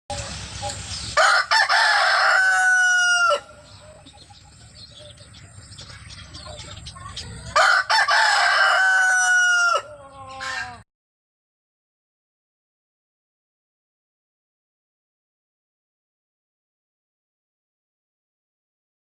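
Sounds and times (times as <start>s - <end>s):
chicken crowing: 1.2s - 3.7s, 7.4s - 10.8s.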